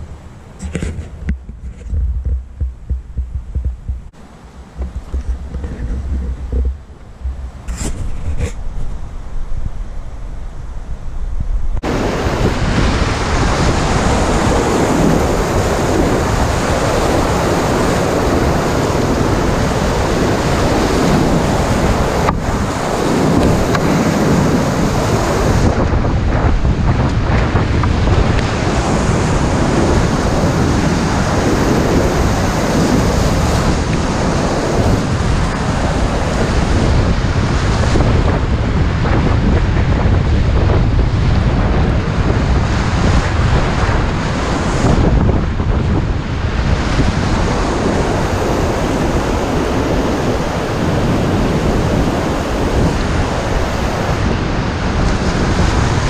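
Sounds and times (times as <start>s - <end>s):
wind buffeting microphone: 0.0s - 56.0s
river whitewater rushing: 11.8s - 25.7s.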